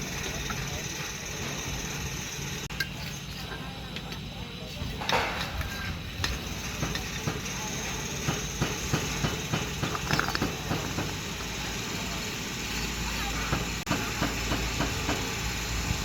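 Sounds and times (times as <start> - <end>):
machine engine running: 0.0 - 5.1
sharp knocks and clatters: 5.0 - 7.6, 8.2 - 11.3.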